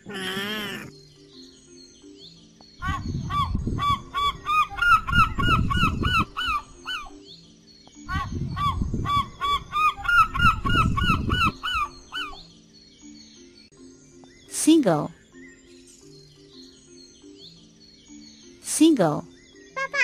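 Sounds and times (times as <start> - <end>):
gulls calling: 0.0 - 1.0, 2.8 - 12.5
quiet background music: 0.0 - 20.0.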